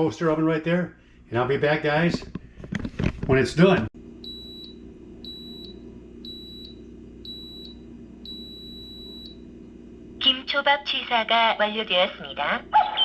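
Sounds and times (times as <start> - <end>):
low steady hum: 0.0 - 13.0
rice cooker beeping: 4.2 - 9.4.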